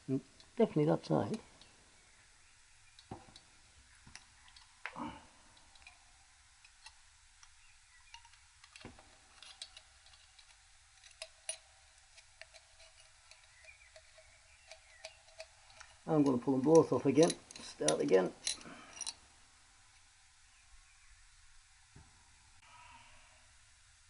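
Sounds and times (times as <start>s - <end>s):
faint metallic clicks and taps: 6.6s - 19.2s.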